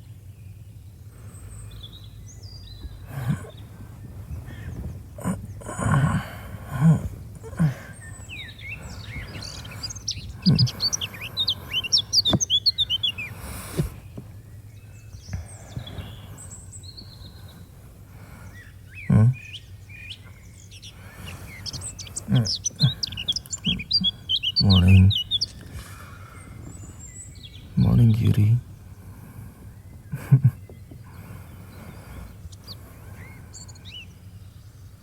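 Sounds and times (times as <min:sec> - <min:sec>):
small birds chirping: 0:00.0 - 0:35.0
dull low thumps: 0:02.0 - 0:18.2, 0:21.0 - 0:25.7.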